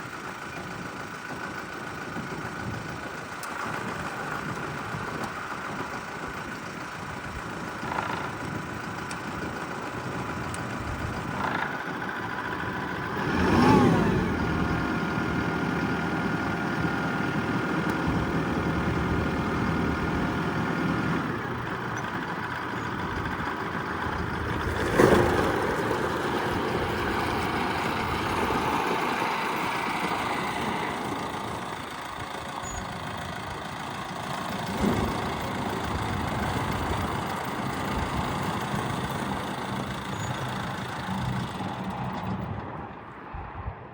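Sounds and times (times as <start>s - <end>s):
tractor diesel engine running: 0.0s - 43.3s.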